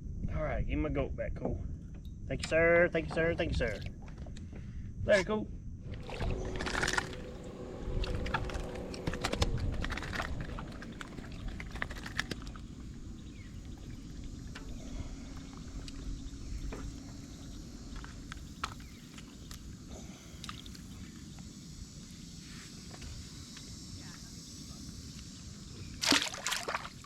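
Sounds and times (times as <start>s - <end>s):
water splashing against kayak: 26.0s - 27.0s.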